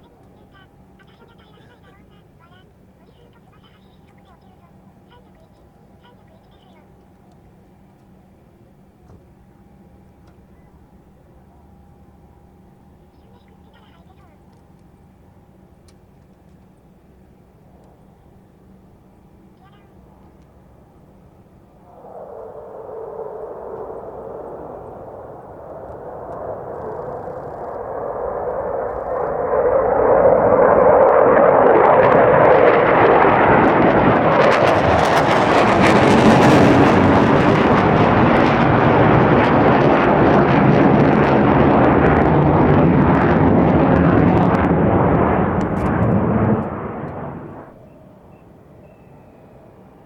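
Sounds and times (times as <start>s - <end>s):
jet fighter roaring low pass: 19.9s - 48.8s.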